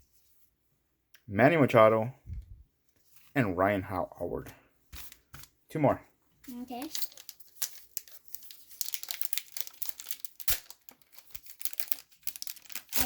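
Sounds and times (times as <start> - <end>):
wrapper crinkling and tearing: 6.6 - 13.0.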